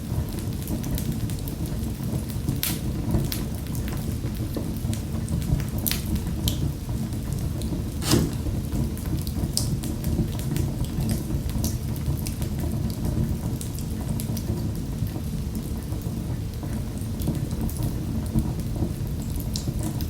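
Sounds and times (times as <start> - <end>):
wood fire crackling and popping: 0.2 - 15.0.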